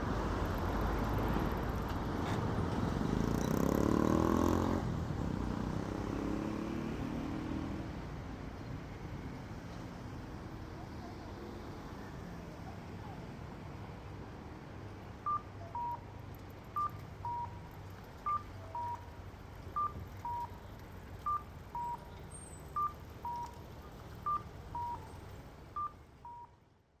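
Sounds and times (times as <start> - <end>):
level-crossing warning bell: 18.3 - 19.1.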